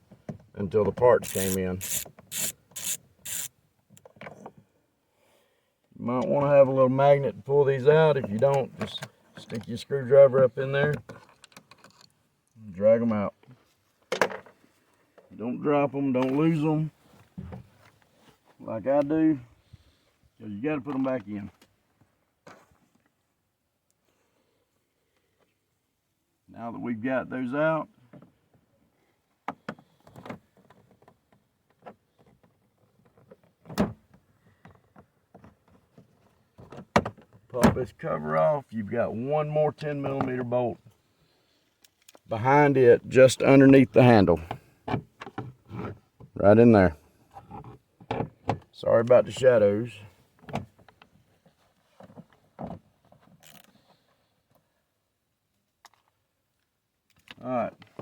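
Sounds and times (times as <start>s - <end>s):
clicks and knocks of tools and plastic: 0.1s - 4.6s, 10.9s - 12.2s, 29.4s - 37.7s, 41.8s - 42.3s, 50.4s - 54.6s, 55.8s - 58.0s
tool scraping: 1.2s - 3.5s.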